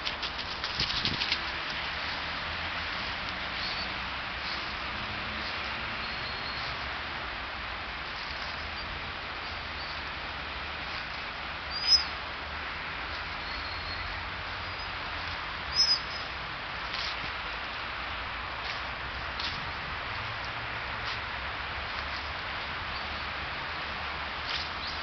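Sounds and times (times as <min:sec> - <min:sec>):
small birds chirping: 0:03.5 - 0:04.6, 0:05.9 - 0:06.8, 0:11.7 - 0:12.2, 0:13.1 - 0:16.4, 0:24.5 - 0:25.0.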